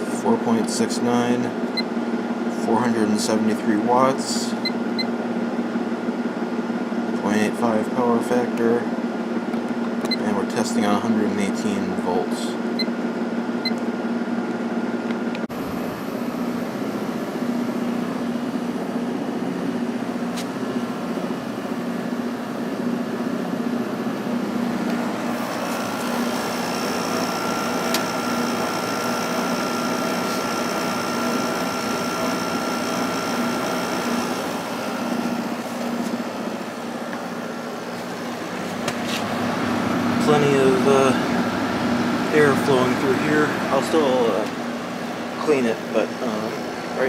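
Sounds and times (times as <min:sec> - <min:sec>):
air conditioner hum: 0:00.0 - 0:47.0
thin high whine: 0:24.1 - 0:36.2.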